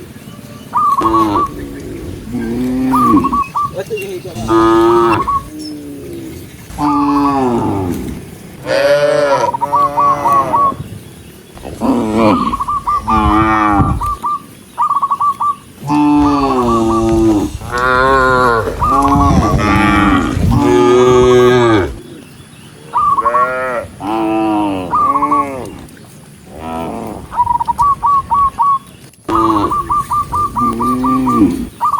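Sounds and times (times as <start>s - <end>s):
cattle mooing: 1.0s - 3.5s, 4.3s - 10.8s, 11.6s - 14.2s, 15.8s - 22.0s, 23.2s - 25.8s, 29.3s - 31.7s.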